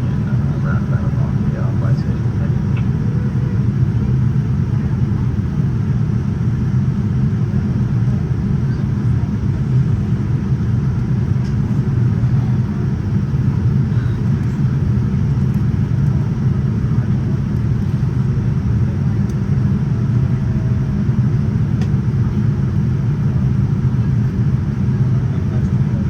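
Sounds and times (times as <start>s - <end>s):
airplane cabin rumble: 0.0s - 26.0s.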